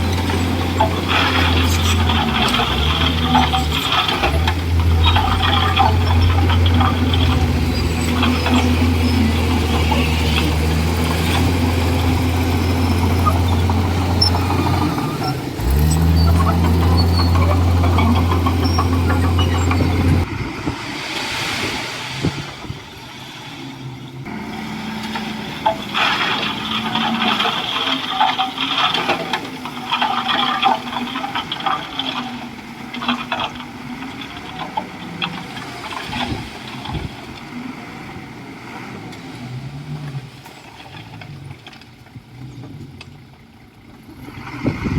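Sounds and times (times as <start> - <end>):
metallic squeaks and clanks: 0.0 - 20.3
bulldozer diesel engine running: 0.0 - 44.9.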